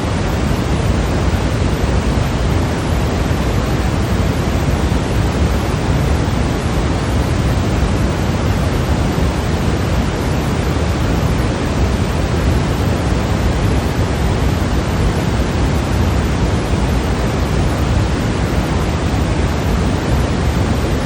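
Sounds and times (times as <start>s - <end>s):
white noise hiss: 0.0s - 21.0s.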